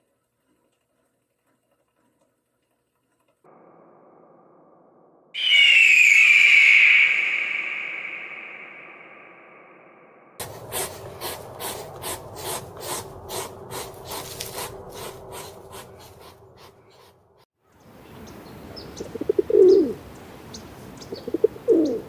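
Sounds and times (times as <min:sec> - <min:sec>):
hedgehog snuffling: 0:10.4 - 0:17.2
small birds chirping: 0:15.9 - 0:22.0
pigeon cooing: 0:19.0 - 0:20.0, 0:21.1 - 0:22.0.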